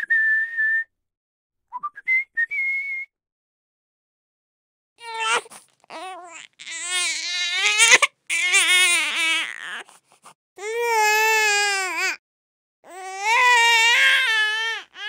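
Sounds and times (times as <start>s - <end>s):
infant breathing: 5.0s - 6.3s, 9.4s - 10.4s
infant crying: 5.0s - 10.0s, 10.6s - 12.2s, 12.9s - 15.0s.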